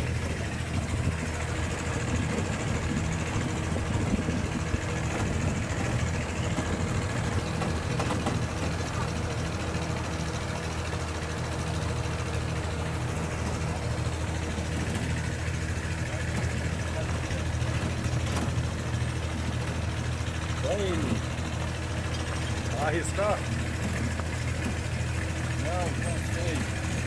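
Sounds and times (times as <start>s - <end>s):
engine idling: 0.0s - 27.0s
faint voices: 15.8s - 27.0s.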